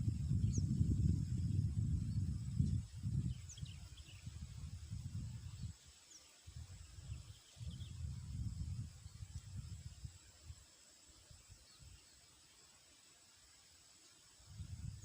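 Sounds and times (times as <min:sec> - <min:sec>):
wind rumble on microphone: 0:00.0 - 0:05.8, 0:06.5 - 0:10.6, 0:14.4 - 0:15.0
faint bird chirps: 0:00.0 - 0:12.8
insect hum: 0:00.0 - 0:15.0.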